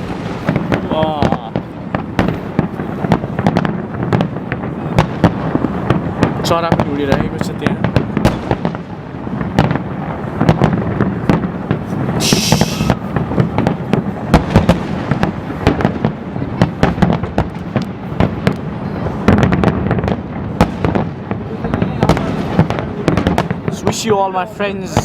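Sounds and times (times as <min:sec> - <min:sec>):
fireworks bangs: 0:00.0 - 0:25.0
fireworks rumble: 0:00.0 - 0:25.0
short hiss: 0:12.2 - 0:13.0.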